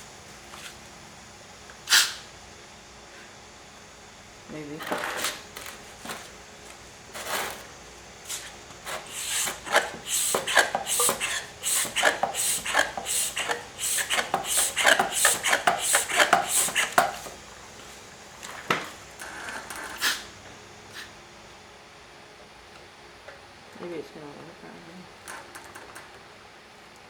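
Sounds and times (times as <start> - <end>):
hands knocking and scraping tube: 9.1 - 17.3.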